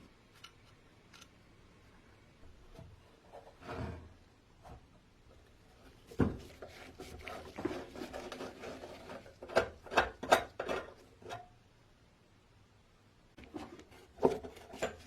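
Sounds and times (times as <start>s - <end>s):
objects clattering and rubbing: 5.8s - 11.5s, 13.4s - 15.0s.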